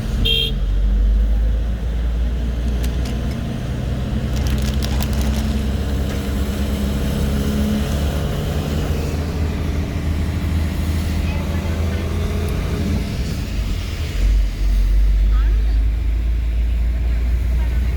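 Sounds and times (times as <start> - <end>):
vehicle engine rumbling: 0.0 - 17.9.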